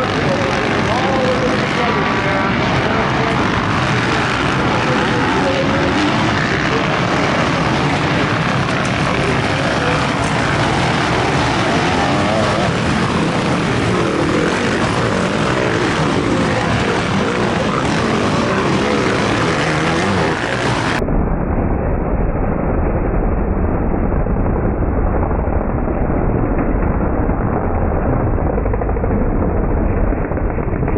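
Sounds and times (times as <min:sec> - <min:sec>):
dirt bike engines revving: 0:00.0 - 0:21.0
muffled low rumble: 0:00.0 - 0:30.9.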